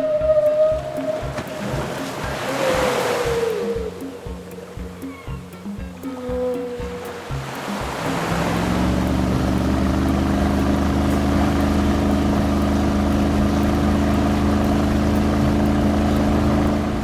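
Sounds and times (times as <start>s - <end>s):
vehicle engine running: 5.8s - 17.0s.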